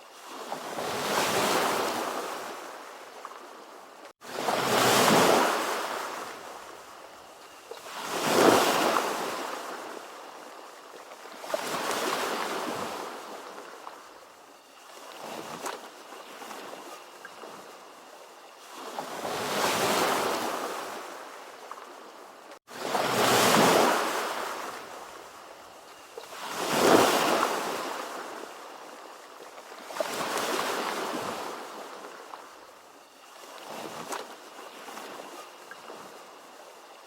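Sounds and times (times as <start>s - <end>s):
ocean waves breaking: 4.2s - 6.9s, 7.7s - 14.2s, 22.6s - 25.3s, 26.2s - 32.5s.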